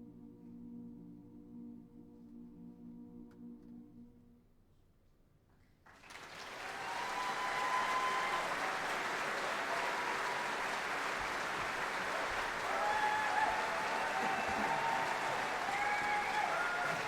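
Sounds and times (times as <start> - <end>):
audience applause: 5.9 - 17.0.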